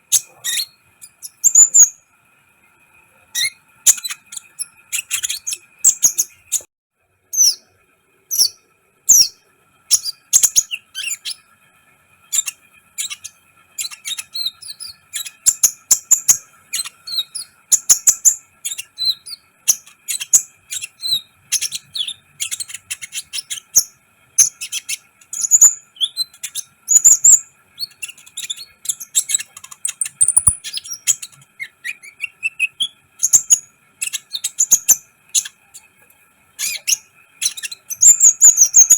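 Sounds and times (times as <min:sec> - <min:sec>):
sunbird chirping: 0:00.0 - 0:02.1, 0:03.2 - 0:06.7, 0:08.3 - 0:11.5, 0:12.3 - 0:36.0, 0:36.6 - 0:38.9
faint high hum: 0:00.0 - 0:38.9.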